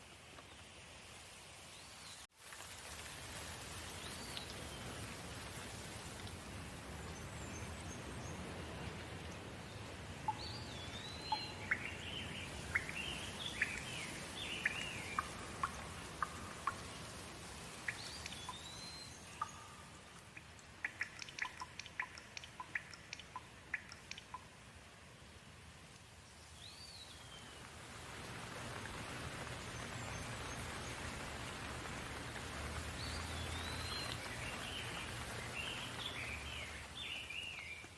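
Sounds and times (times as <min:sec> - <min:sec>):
rain hiss: 0:00.0 - 0:37.9
birds chirping: 0:07.0 - 0:24.5, 0:32.8 - 0:37.9.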